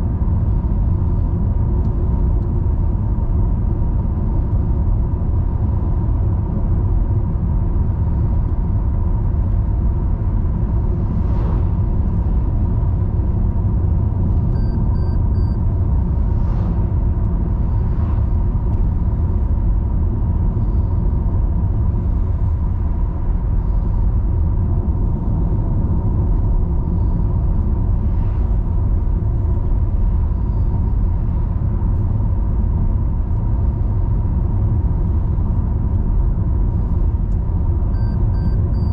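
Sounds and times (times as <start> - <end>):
car driving rumble: 0.0 - 38.9
short high beeps: 14.6 - 15.6, 38.0 - 38.9.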